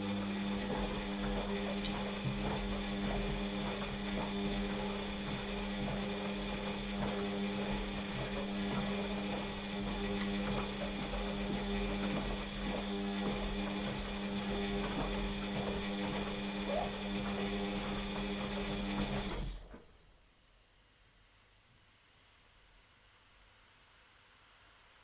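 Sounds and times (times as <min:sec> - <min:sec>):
washing machine motor humming: 0:00.0 - 0:19.7.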